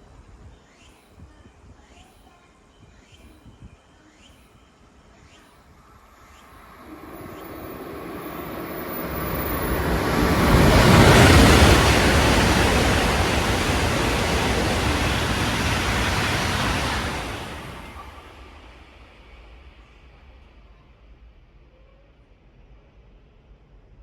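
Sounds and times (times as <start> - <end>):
high-speed train rushing past: 5.9 - 21.3.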